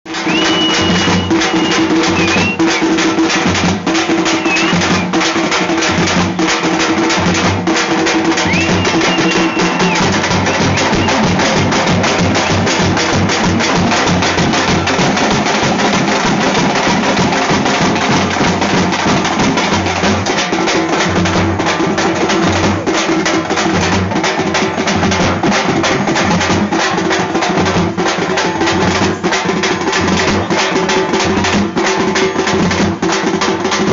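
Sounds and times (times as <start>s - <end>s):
frame drums beaten with sticks: 0.1s - 33.9s
shrill high tones: 0.2s - 2.7s, 8.4s - 12.8s.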